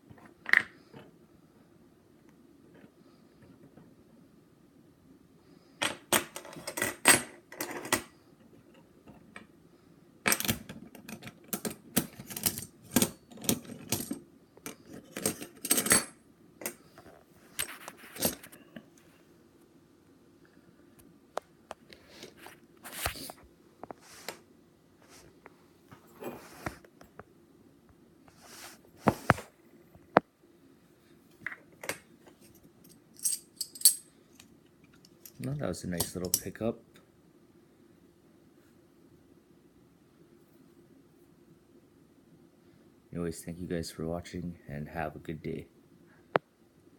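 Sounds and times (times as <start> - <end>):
coins clinking together: 33.2 - 34.1.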